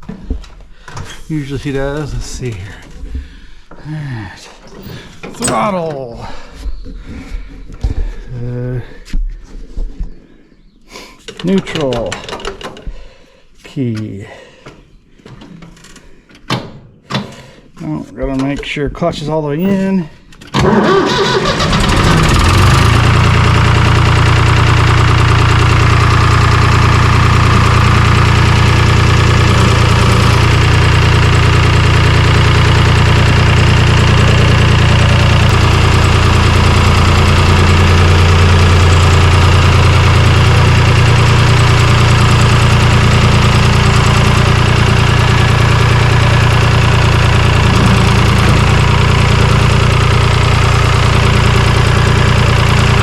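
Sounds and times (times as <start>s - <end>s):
tractor engine starting and idling: 3.9s - 6.4s, 11.3s - 12.9s, 18.2s - 53.0s.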